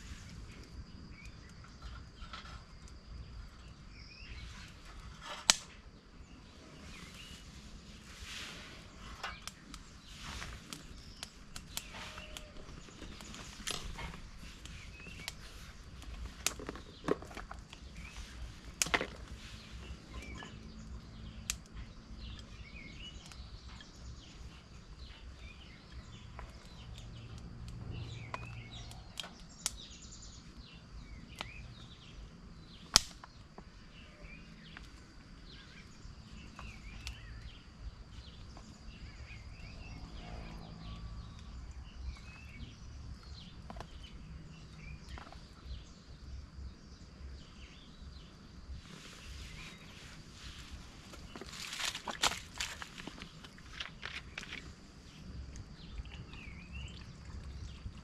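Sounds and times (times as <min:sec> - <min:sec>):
bird chirps: 0:19.5 - 0:34.8.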